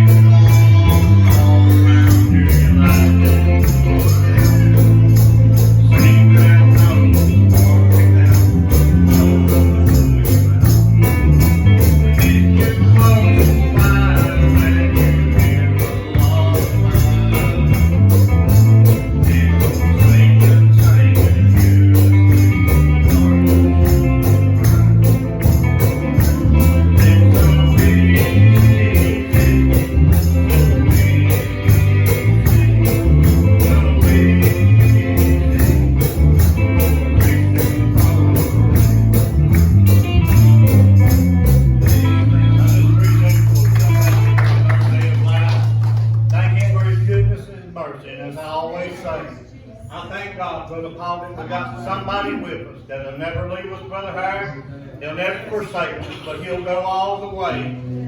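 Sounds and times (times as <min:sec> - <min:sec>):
tambourine shaking: 0:00.0 - 0:45.2
gospel band music: 0:00.0 - 0:47.8.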